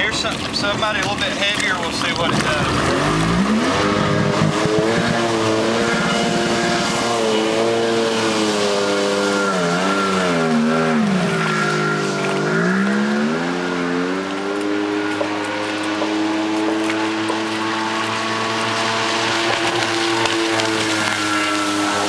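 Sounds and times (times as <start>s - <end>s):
jet ski engine running: 0.0s - 22.0s.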